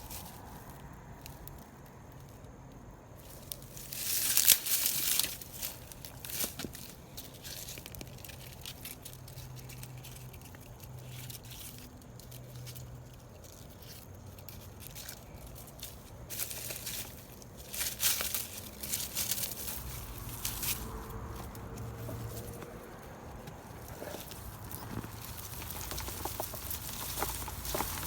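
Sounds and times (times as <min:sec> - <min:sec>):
digging through soil by hand: 0:03.2 - 0:28.0.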